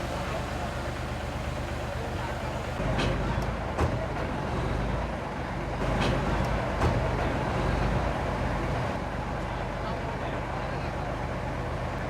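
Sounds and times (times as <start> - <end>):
diesel machinery running: 0.0 - 9.4.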